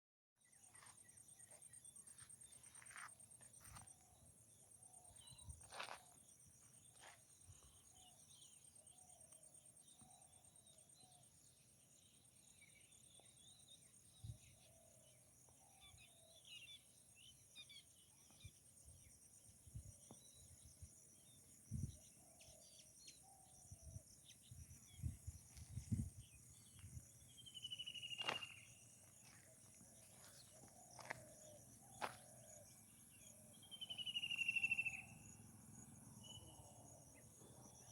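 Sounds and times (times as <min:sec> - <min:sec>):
high-pitched insect trill: 0:00.7 - 0:37.9
bird chirps: 0:21.2 - 0:37.9
falling whistled bird call: 0:33.8 - 0:35.1.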